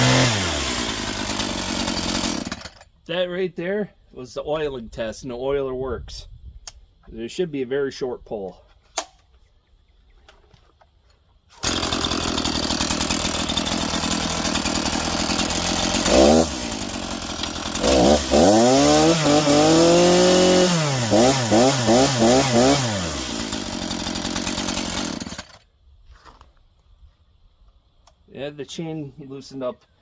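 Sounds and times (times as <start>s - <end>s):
chainsaw idling and revving: 0.0s - 2.9s, 11.6s - 25.7s.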